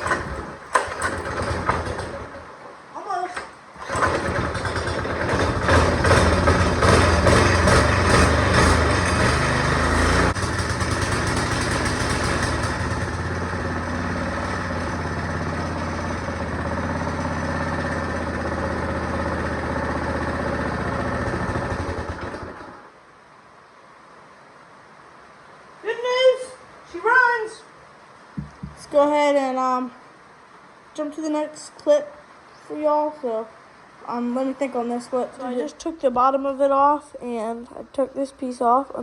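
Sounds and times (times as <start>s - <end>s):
go-kart engine running: 0.0s - 2.5s, 3.3s - 22.9s.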